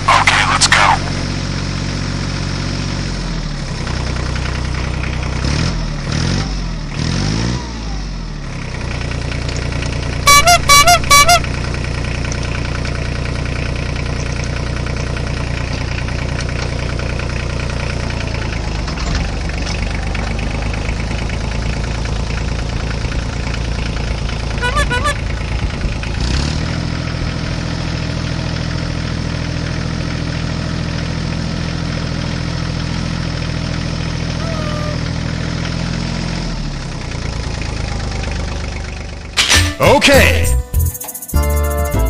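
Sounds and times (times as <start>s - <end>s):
tractor engine revving: 0.0s - 42.0s
wavering horn honks: 10.2s - 11.9s, 24.4s - 25.8s.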